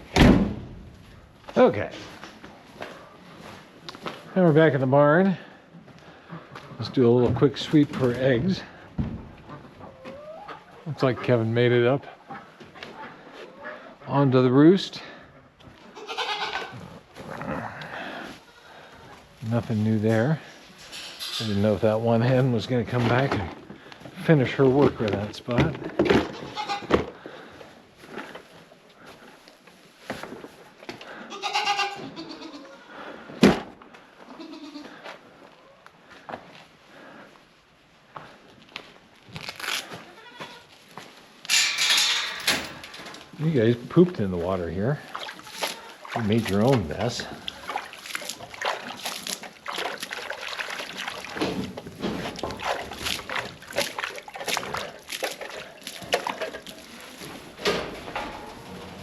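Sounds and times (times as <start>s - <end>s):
rustling and shuffling: 0.0s - 10.2s, 16.8s - 31.2s, 34.9s - 59.0s
goat bleating: 15.8s - 16.9s, 26.3s - 27.0s, 31.2s - 33.0s, 34.3s - 35.0s, 40.0s - 40.7s, 45.4s - 46.1s
water sloshing in a bowl: 45.0s - 57.4s.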